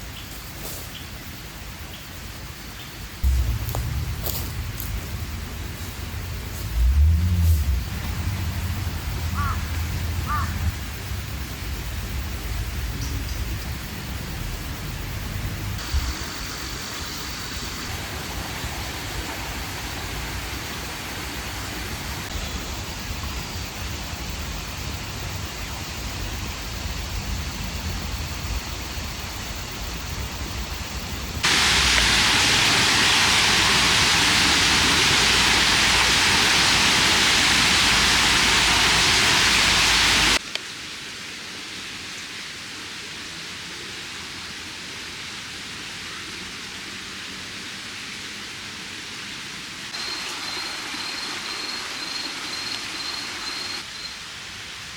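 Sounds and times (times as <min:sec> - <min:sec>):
loud rushing noise: 0:03.2 - 0:09.2, 0:31.4 - 0:40.4
low outdoor rumble: 0:03.2 - 0:15.9.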